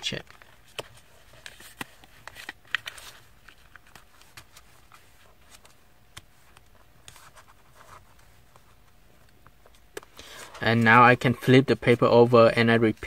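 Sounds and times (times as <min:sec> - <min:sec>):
paper rustling and crinkling: 0:00.3 - 0:09.0.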